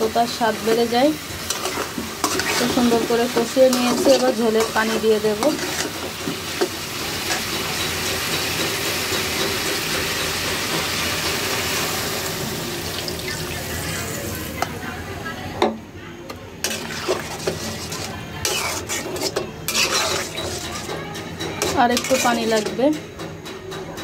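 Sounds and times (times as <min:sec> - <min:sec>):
vegetables sizzling in a pot: 0:00.0 - 0:15.1, 0:16.6 - 0:23.0
metal spatula scraping a pot: 0:00.2 - 0:11.6, 0:16.6 - 0:23.0.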